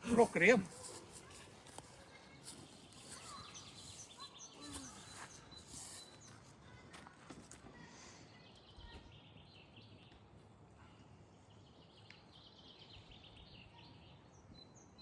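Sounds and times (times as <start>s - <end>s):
faint birdsong rapid high chirps: 0.1s - 6.9s, 8.0s - 15.0s.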